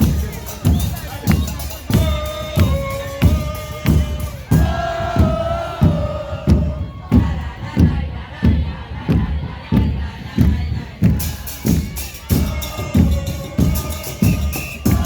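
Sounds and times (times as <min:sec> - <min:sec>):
bass drums beating: 0:00.0 - 0:15.0
voices shouting long notes: 0:01.9 - 0:07.2.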